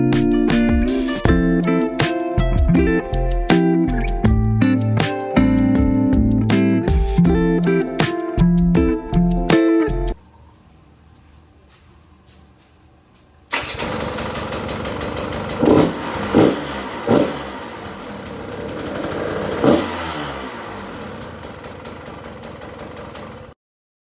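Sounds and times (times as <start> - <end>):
dirt bike engine revving: 13.5 - 23.5.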